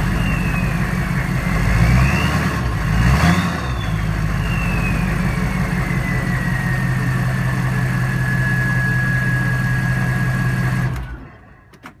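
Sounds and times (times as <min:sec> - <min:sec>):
high turbo whistle: 0:00.0 - 0:01.1, 0:01.9 - 0:10.0
diesel engine idling: 0:00.0 - 0:11.7.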